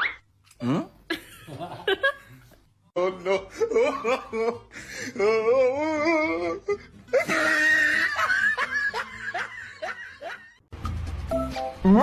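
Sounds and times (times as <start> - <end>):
person laughing: 3.0 - 10.5
background music: 3.0 - 12.0.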